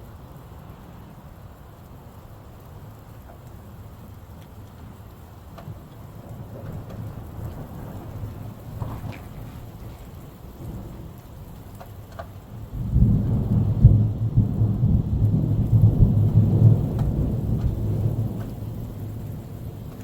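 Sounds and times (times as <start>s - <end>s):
steady rain: 0.0s - 20.0s
low roll of thunder: 5.7s - 20.0s.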